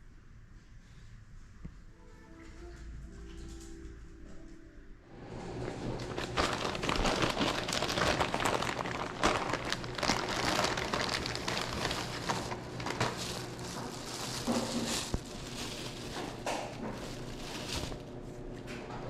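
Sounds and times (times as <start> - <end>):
packaging crinkling: 5.5 - 18.2.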